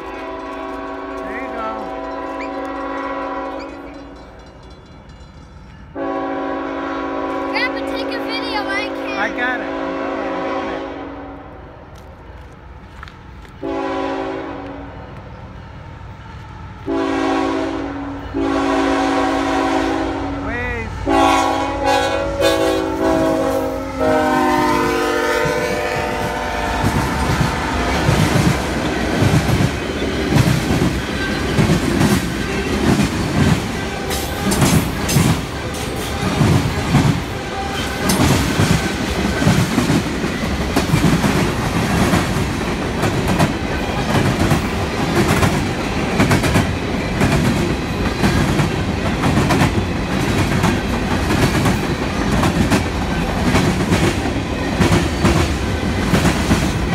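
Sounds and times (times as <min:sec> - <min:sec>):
locomotive horn: 0:00.0 - 0:04.1, 0:05.9 - 0:11.6, 0:13.6 - 0:15.0, 0:16.8 - 0:28.1.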